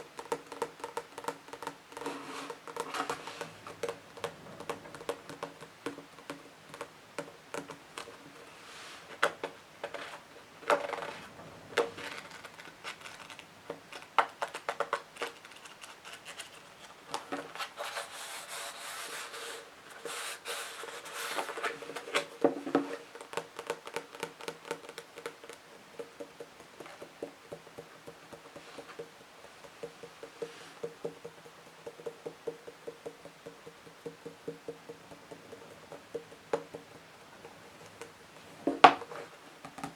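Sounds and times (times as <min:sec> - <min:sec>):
fingers tapping on books: 0:00.0 - 0:08.5, 0:09.1 - 0:16.3, 0:21.1 - 0:39.9
fingers scratching on books: 0:01.5 - 0:05.6, 0:11.8 - 0:22.2.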